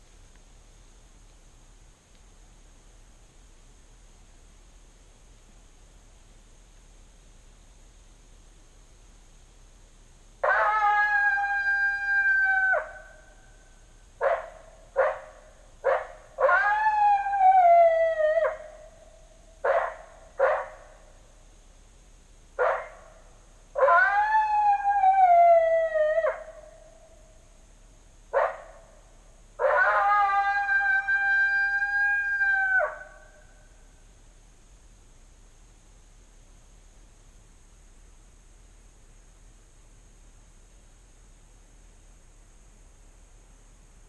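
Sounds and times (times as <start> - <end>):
recorded coyote howls: 10.4 - 13.5, 14.2 - 20.9, 22.6 - 23.1, 23.7 - 27.3, 28.3 - 28.8, 29.6 - 33.7.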